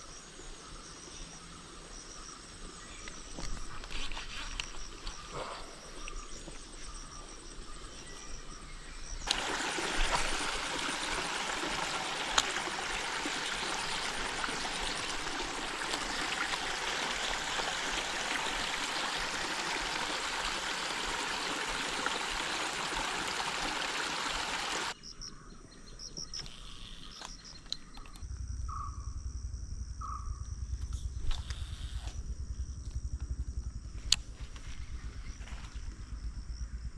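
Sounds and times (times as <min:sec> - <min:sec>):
high insect chirping: 0:00.0 - 0:36.9
flowing water rushing: 0:09.2 - 0:25.0.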